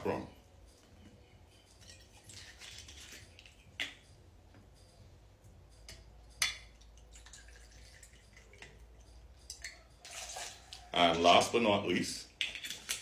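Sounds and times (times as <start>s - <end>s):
liquid trickling into shaker: 1.8s - 3.8s, 7.0s - 9.1s, 10.0s - 10.9s.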